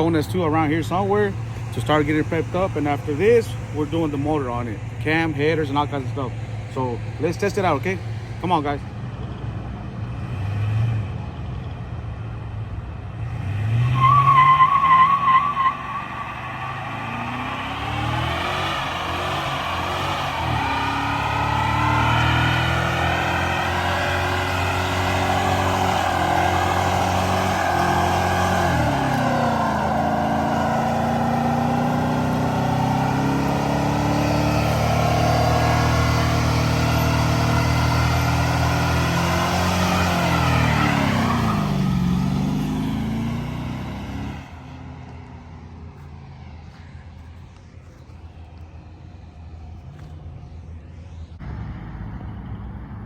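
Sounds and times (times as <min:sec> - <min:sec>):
van engine revving hard: 0:13.2 - 0:44.5
tires spinning in burnout: 0:13.2 - 0:45.3.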